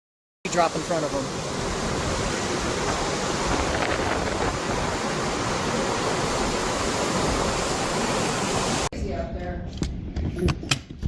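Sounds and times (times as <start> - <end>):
strong wind blowing: 1.0 - 9.3.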